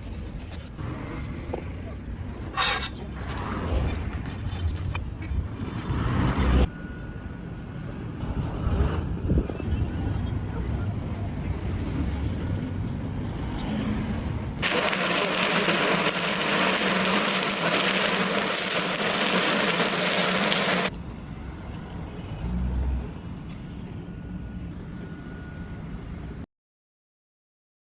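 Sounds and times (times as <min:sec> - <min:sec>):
welding arc crackling: 0:14.6 - 0:20.9.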